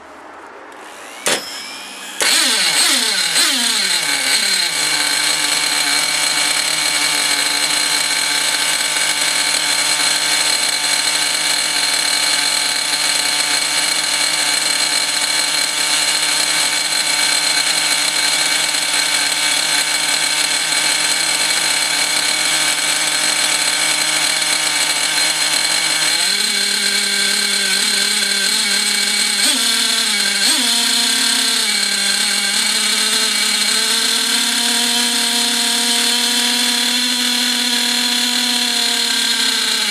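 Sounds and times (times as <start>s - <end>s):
model engine high-pitched buzz: 0.7s - 39.9s.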